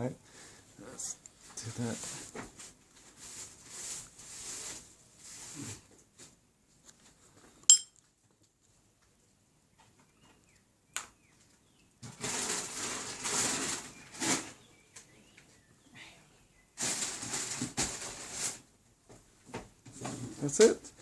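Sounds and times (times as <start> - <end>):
rustling: 1.1 - 7.6, 11.4 - 15.1, 16.8 - 18.7.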